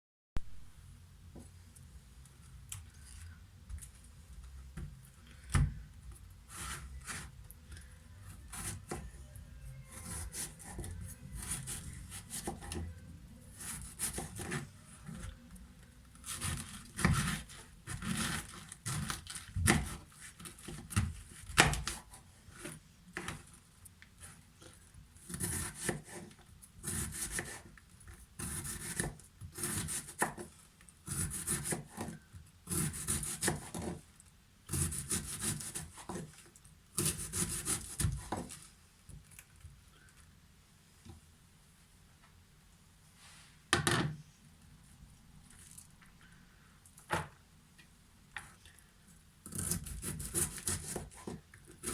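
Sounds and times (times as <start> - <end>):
knife slicing cabbage: 6.5 - 7.4, 8.3 - 9.0, 9.9 - 12.9, 13.5 - 15.2, 16.2 - 23.4, 25.2 - 34.0, 34.7 - 38.7, 49.4 - 51.9.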